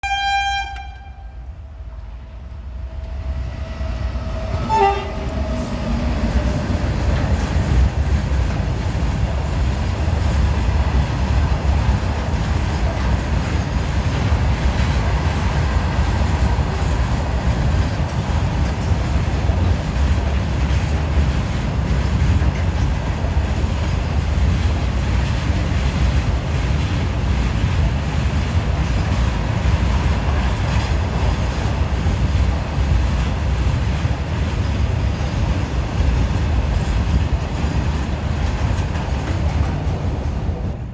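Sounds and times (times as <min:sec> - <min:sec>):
train horn: 0:00.0 - 0:01.9, 0:03.6 - 0:06.8
freight train rumbling by: 0:00.0 - 0:40.9
train wheel clatter: 0:01.9 - 0:40.9.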